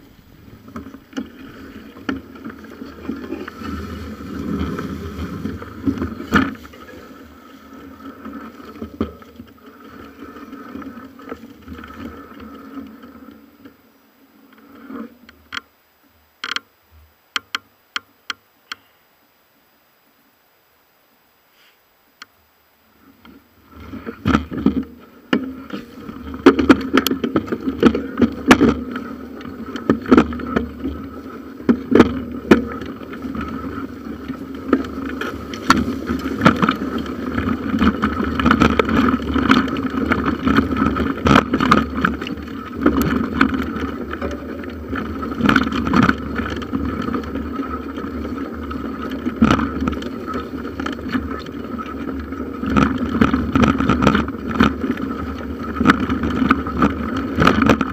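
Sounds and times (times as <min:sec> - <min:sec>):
bicycle rolling on trail: 0:00.0 - 0:19.0, 0:21.5 - 0:57.9
knocks and rattles from bumps: 0:23.2 - 0:57.9.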